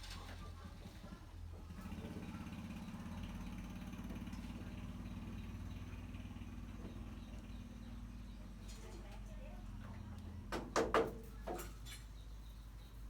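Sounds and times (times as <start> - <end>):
small engine running: 0.4 - 8.7.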